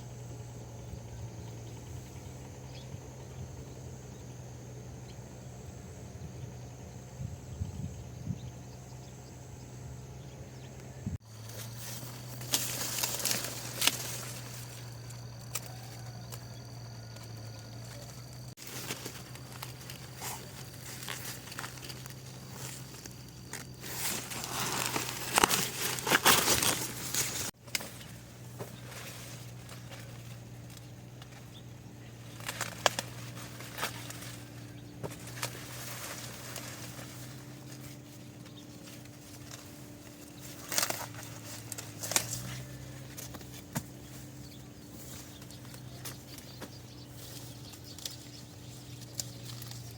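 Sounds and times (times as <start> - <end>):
steady low hum: 0.0 - 49.9
rustling and crackling: 11.3 - 49.9.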